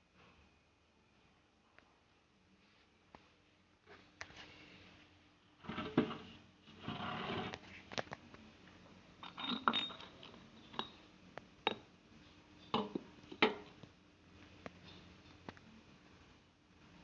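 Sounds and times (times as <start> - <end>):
metallic clinks and knocks: 9.2 - 11.0.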